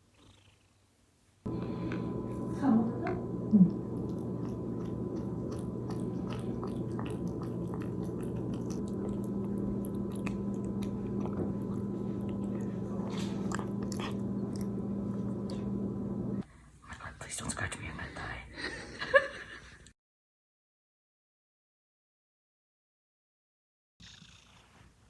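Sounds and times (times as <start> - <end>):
cat purring: 0.0 - 0.8, 1.5 - 16.4, 24.0 - 24.9.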